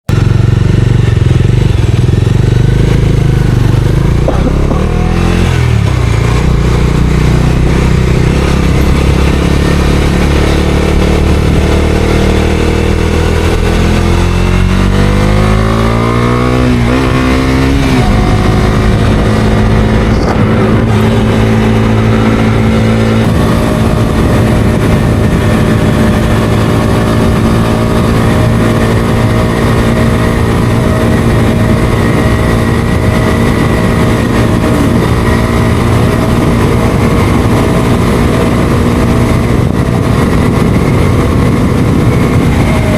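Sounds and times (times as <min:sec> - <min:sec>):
motorcycle engine accelerating: 0:00.0 - 0:42.9.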